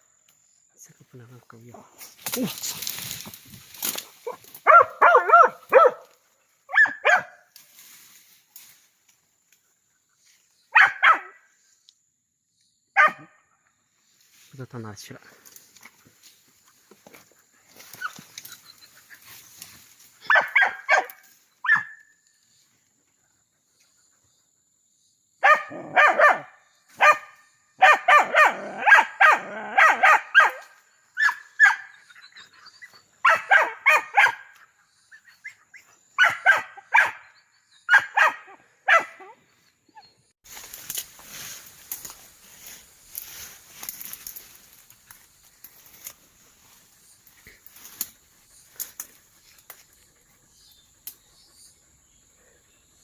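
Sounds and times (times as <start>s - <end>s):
dog barking: 4.2s - 6.1s, 6.7s - 7.4s, 10.7s - 11.4s, 13.0s - 13.4s, 20.2s - 22.0s, 25.4s - 32.0s, 33.2s - 34.6s, 36.2s - 37.3s, 37.9s - 39.4s.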